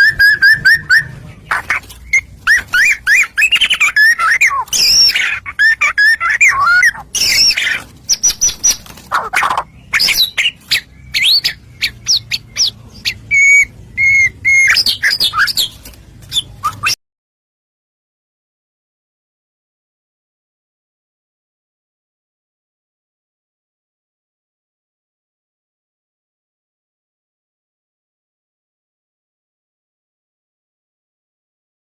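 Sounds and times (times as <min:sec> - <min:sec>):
bird singing whistled song: 0:00.0 - 0:01.2, 0:02.0 - 0:08.8, 0:09.4 - 0:17.0.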